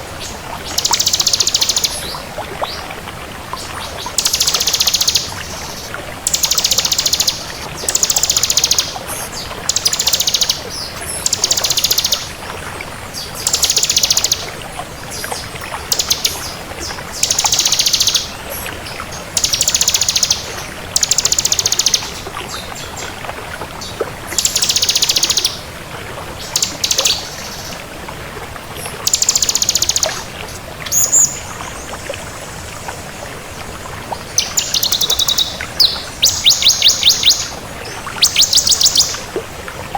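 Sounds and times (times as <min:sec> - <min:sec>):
bird singing buzzy trills: 0:34.4 - 0:39.2.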